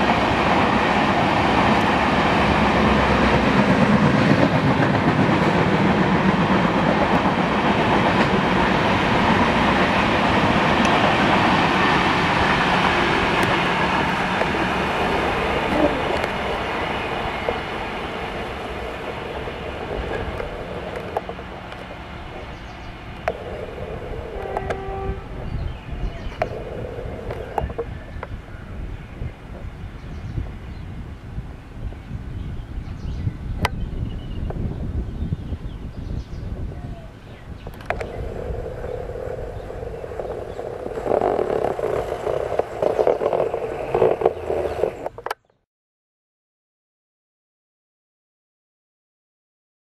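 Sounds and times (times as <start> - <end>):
train wheels clicking: 0.0 - 25.2, 37.7 - 45.3
train coaches rumbling over track: 0.0 - 45.3.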